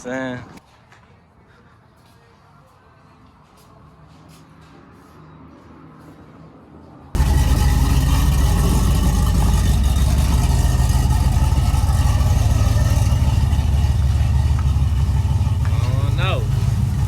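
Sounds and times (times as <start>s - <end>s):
vehicle engine rumbling: 4.5s - 17.0s.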